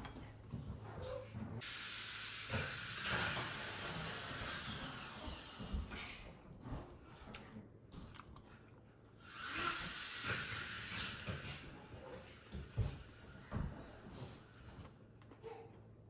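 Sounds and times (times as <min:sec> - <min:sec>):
loud sucking noise: 0:01.6 - 0:05.7, 0:09.2 - 0:11.7
chewing and biting: 0:07.0 - 0:09.2.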